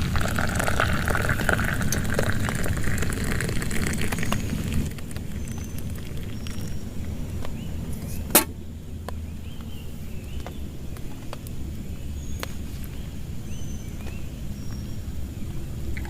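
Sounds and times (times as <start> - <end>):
steady rain: 0.0 - 7.6.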